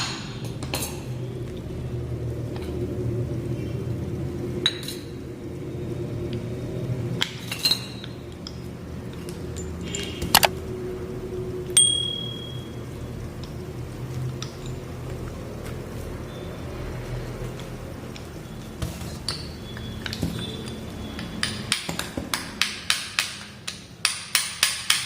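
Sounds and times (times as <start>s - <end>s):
steady low hum: 0.2s - 19.7s
metal parts clinking: 9.1s - 10.5s.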